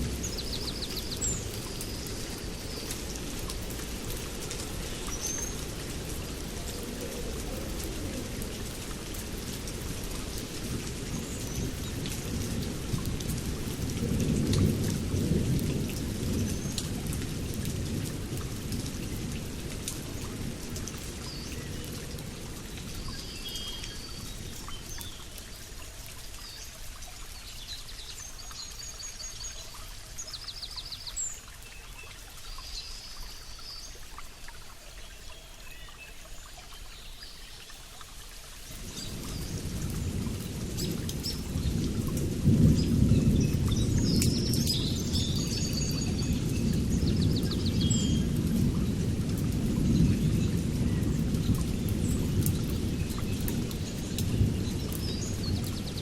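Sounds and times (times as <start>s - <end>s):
low rumble of thunder: 0.0s - 24.6s, 38.7s - 56.0s
steady rain falling: 0.0s - 56.0s.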